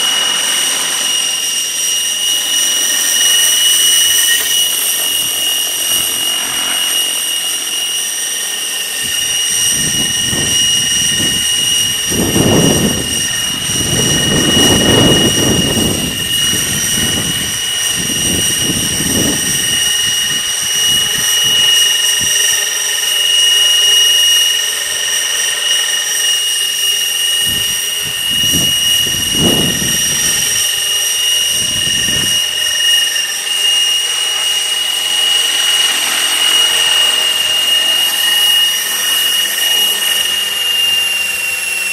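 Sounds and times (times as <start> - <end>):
rc helicopter motor whine: 0.0 - 41.9
wind buffeting microphone: 9.0 - 22.5, 27.4 - 32.6.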